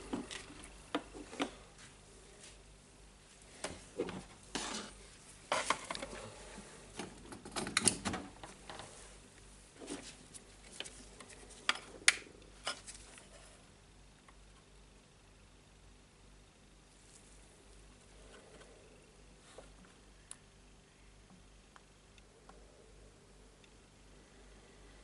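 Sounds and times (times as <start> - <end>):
tools and plastic parts clattering: 5.5 - 6.2, 7.0 - 8.8.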